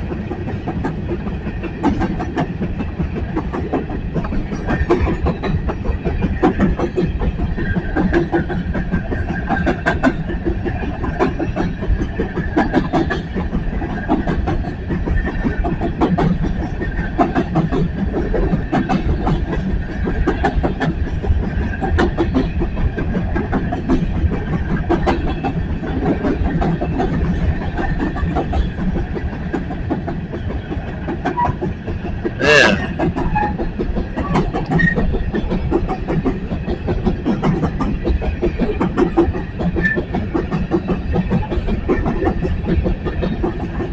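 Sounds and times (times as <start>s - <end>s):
train rumble: 0.0s - 43.9s
train wheels clicking over rail joints: 0.0s - 43.9s
brief train squeal: 32.5s - 33.6s, 34.3s - 35.2s, 39.8s - 40.1s.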